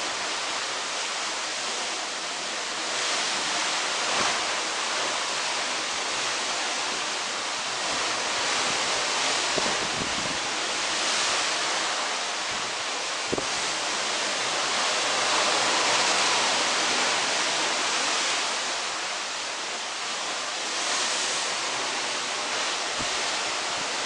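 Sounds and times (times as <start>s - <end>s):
sea water rushing along ship hull: 0.0s - 24.0s
wind on microphone: 7.8s - 13.7s.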